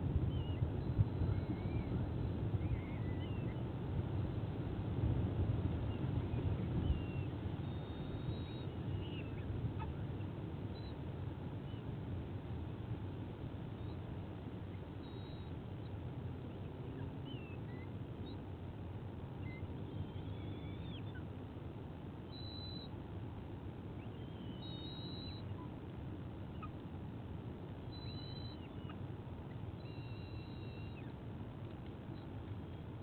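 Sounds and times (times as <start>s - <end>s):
low outdoor rumble: 0.0s - 33.0s
whistled bird calls: 0.3s - 3.6s, 5.9s - 11.0s, 15.0s - 15.9s, 16.9s - 18.4s, 19.4s - 21.3s, 22.2s - 22.9s, 23.9s - 25.8s, 27.8s - 31.2s.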